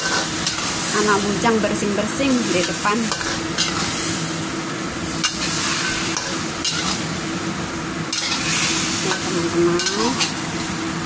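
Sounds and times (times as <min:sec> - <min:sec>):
chicken sizzling in a wok: 0:00.0 - 0:11.0.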